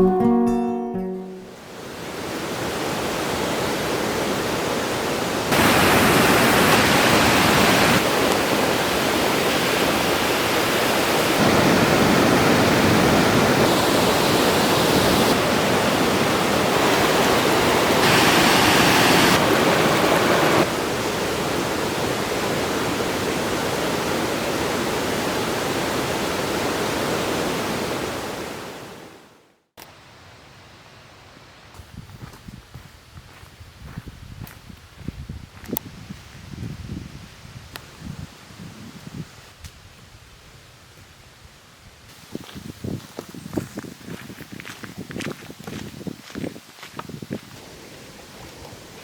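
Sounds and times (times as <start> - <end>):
falling water rushing: 1.7 - 29.0.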